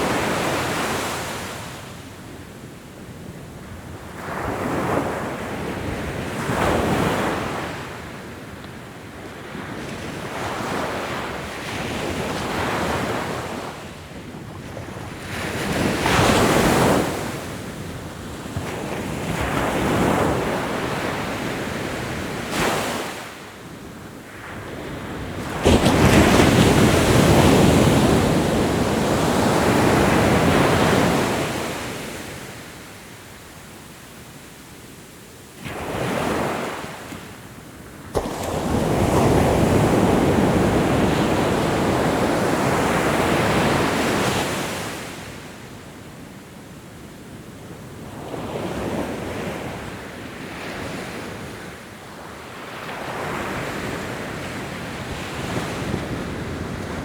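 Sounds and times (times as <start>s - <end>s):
ocean waves breaking on shore: 9.4s - 33.6s, 35.6s - 45.8s.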